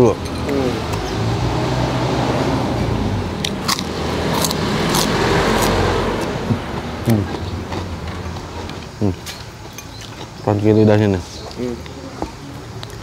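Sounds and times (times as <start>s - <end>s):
cracker crunching: 3.4s - 10.7s.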